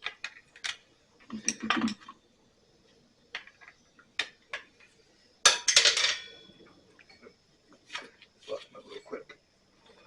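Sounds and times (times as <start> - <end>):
metal on metal clatter: 5.5 - 6.4.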